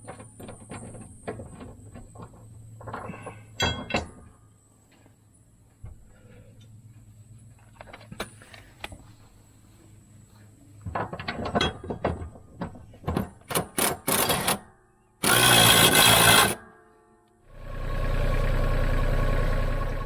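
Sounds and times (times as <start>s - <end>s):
power tool burst: 15.2s - 16.7s.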